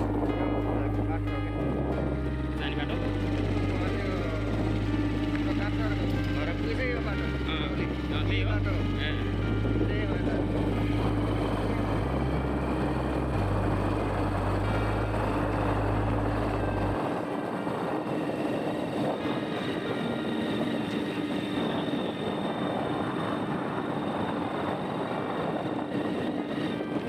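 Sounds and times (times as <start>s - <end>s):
deep low hum: 0.0s - 17.4s
motorcycle engine running: 0.0s - 22.8s
road and wind noise: 0.0s - 27.0s.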